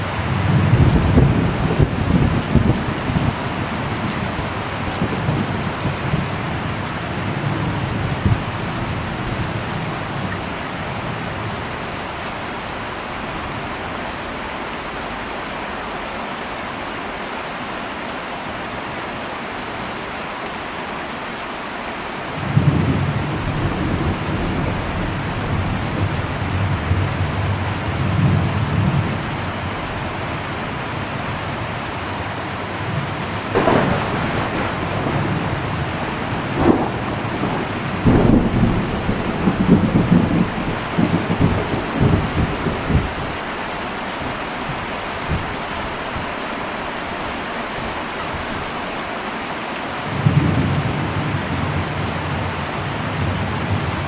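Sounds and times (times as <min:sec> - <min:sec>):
rolling thunder: 0:00.0 - 0:11.9, 0:22.4 - 0:30.6, 0:31.3 - 0:43.5
heavy rain on a metal roof: 0:00.0 - 0:54.0.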